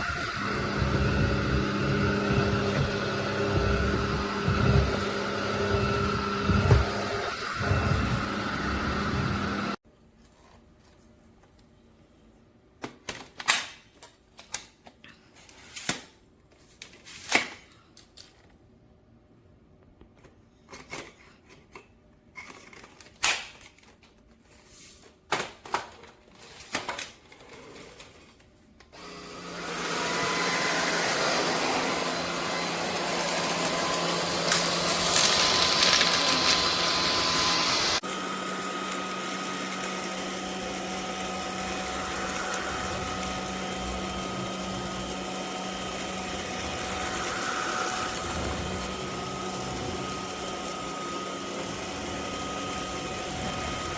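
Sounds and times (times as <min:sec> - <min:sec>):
stick vacuum motor humming: 0:00.0 - 0:09.8, 0:29.0 - 0:53.9.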